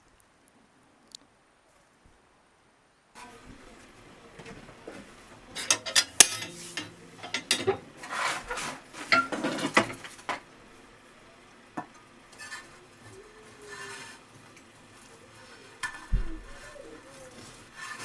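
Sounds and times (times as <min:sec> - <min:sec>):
dishes and utensils clinking: 0:05.5 - 0:10.5, 0:11.8 - 0:18.0.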